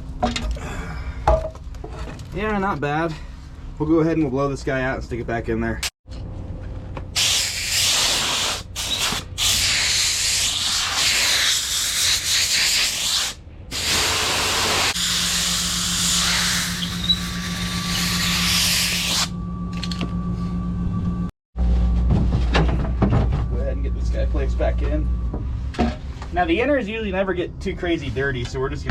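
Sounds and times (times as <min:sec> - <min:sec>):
compressed air blow gun hissing: 0:07.2 - 0:19.3
low steady hum: 0:15.0 - 0:28.9.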